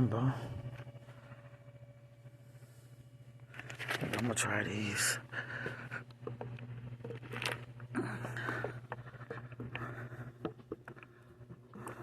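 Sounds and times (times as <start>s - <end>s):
steady low hum: 0.0s - 12.0s
bags rustling and clicking: 7.0s - 9.8s.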